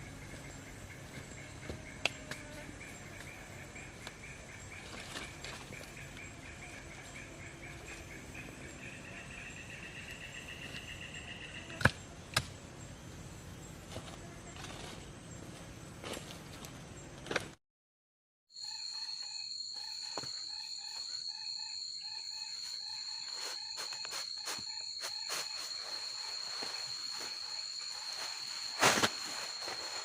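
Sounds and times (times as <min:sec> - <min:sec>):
insect trilling: 0:18.6 - 0:30.0.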